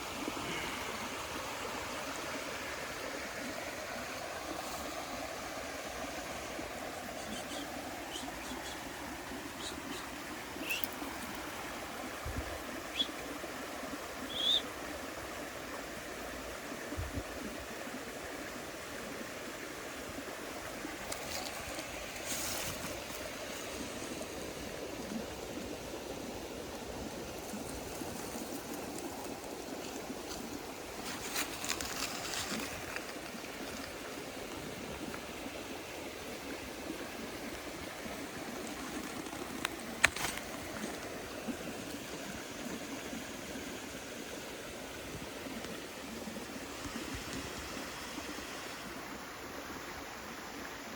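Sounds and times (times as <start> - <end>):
stream rushing: 0.0 - 50.9.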